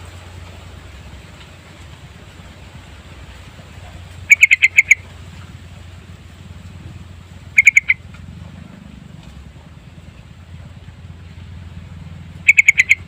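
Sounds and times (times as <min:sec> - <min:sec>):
steady low hum: 0:00.0 - 0:13.0
bulbul song rapid notes: 0:04.2 - 0:05.1, 0:06.8 - 0:08.1, 0:12.3 - 0:13.0.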